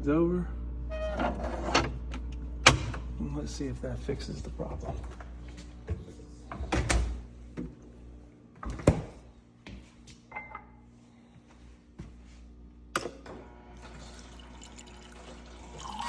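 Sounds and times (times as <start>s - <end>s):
refrigerator knocks and clicks: 8.6s - 9.2s.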